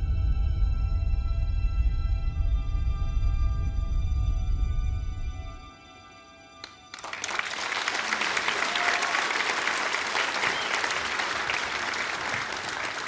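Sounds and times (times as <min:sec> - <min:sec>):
audience applauding: 0:06.6 - 0:13.0
audience cheering: 0:06.9 - 0:13.0.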